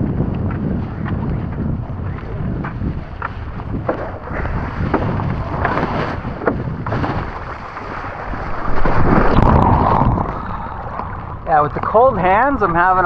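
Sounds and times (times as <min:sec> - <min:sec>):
wind buffeting microphone: 0:00.0 - 0:13.0
rushing splashing water: 0:03.4 - 0:13.0.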